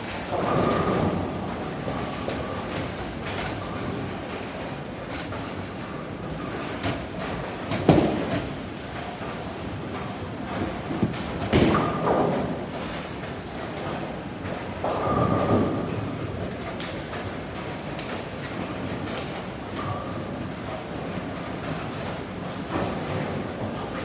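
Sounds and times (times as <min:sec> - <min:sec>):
rumbling with pins clattering: 0:00.0 - 0:23.9
steady bowling alley din: 0:00.0 - 0:24.0
bowling ball heavy thud: 0:00.4 - 0:12.6.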